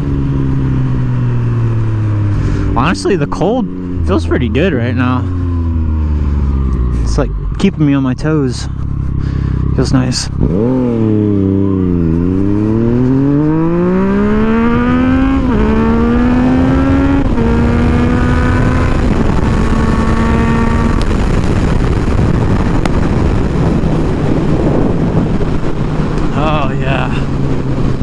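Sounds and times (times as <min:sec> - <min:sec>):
motorcycle engine accelerating: 0:00.0 - 0:28.0
wind rush: 0:08.7 - 0:28.0.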